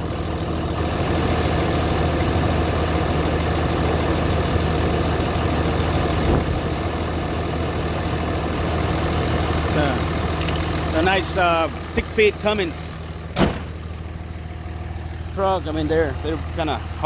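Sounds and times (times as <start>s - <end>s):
diesel engine idling: 0.0s - 17.0s
short knock: 13.4s - 13.8s.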